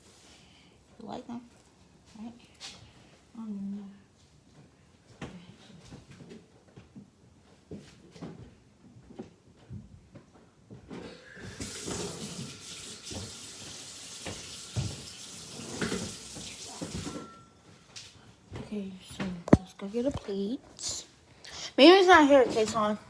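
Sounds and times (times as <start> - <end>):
kitchen tap running: 11.2 - 17.4
knocks and clinks in sink: 14.2 - 17.6.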